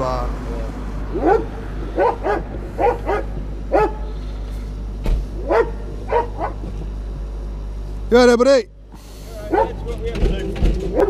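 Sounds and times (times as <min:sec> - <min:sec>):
dog barking: 0:01.1 - 0:04.1, 0:05.4 - 0:06.7, 0:09.4 - 0:09.9.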